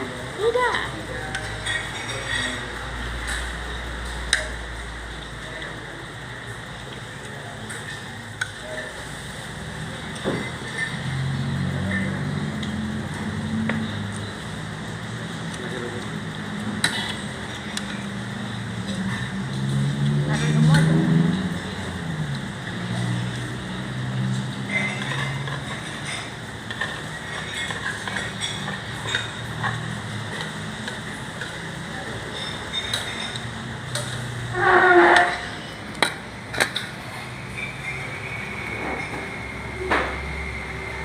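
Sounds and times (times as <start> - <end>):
cutlery and plates clinking: 1.2 - 3.5, 24.6 - 34.2, 34.8 - 39.4
vehicle engine humming: 2.6 - 41.0.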